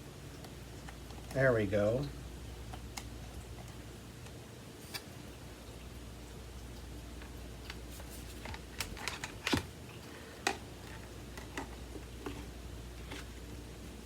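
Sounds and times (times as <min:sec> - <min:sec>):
plastic parts clicking and knocking: 0:08.4 - 0:09.7, 0:10.4 - 0:12.4.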